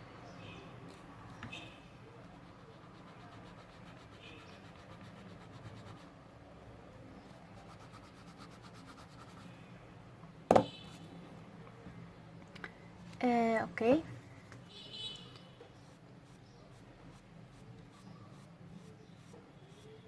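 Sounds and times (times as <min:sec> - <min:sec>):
brush rubbing on paper: 0:02.2 - 0:06.1, 0:07.6 - 0:09.5.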